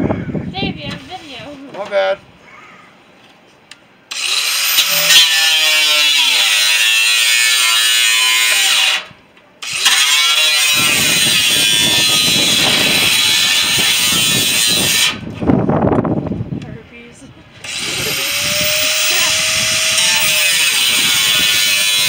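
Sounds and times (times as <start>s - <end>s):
power tool motor whine: 4.1s - 15.2s, 17.6s - 22.0s.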